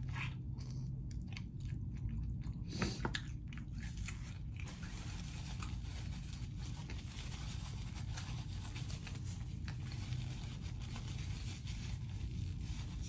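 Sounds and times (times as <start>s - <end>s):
mouth chewing: 0.0s - 6.2s
steady low hum: 0.0s - 13.0s
paper napkin rustling: 4.6s - 13.0s.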